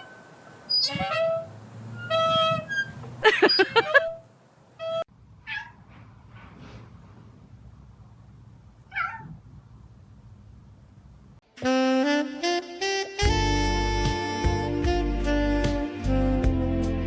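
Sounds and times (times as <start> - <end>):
cat meowing: 4.8 - 5.8, 8.9 - 9.4.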